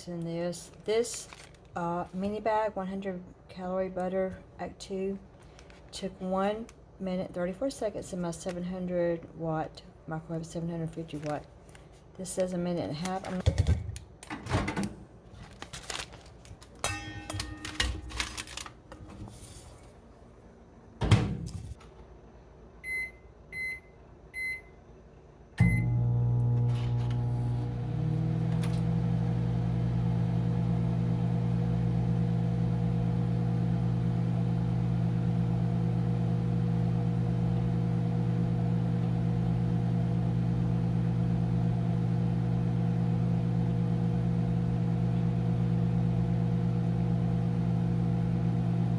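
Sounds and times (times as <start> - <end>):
microwave humming: 12.9 - 48.9
handling knocks and rustles: 13.0 - 20.0
microwave keypad beeps: 22.8 - 24.8, 25.6 - 26.0.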